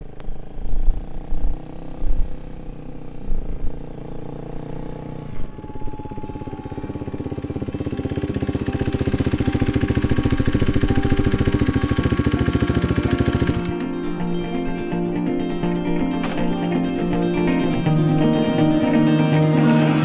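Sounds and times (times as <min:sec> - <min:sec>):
motorcycle engine running: 0:00.0 - 0:20.0
music with fast pulsing beat: 0:08.5 - 0:20.0.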